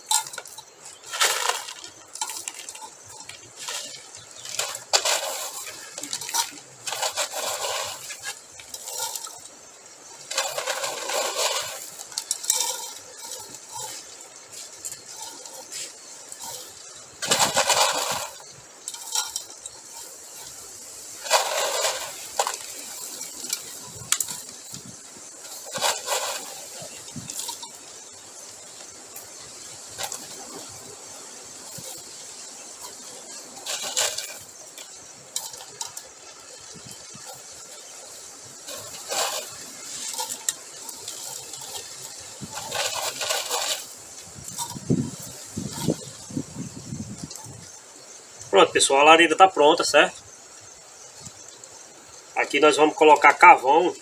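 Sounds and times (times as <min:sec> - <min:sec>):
gravel rattling and clinking: 0:00.0 - 0:54.0.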